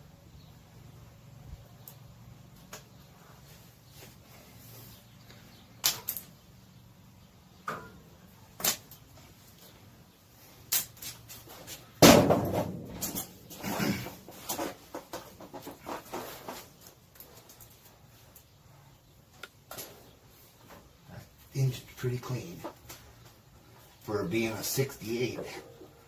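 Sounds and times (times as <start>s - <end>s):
rattling and scraping: 10.9s - 18.0s.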